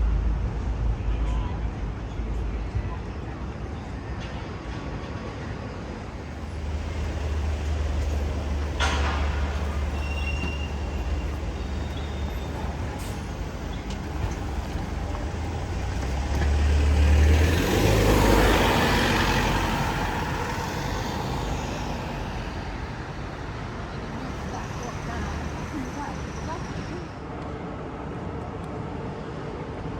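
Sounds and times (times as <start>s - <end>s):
heavy vehicle engine rumbling: 0.0s - 27.2s
rush of passing vehicle noise: 6.0s - 27.2s.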